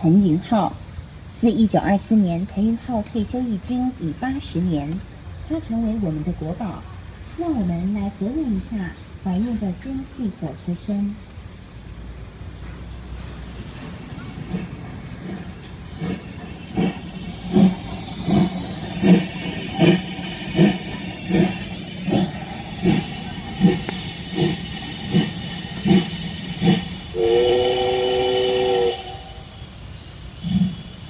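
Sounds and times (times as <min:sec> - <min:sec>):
steam locomotive exhaust chuffs: 0:00.0 - 0:31.0
steam whistle chord: 0:27.1 - 0:29.6.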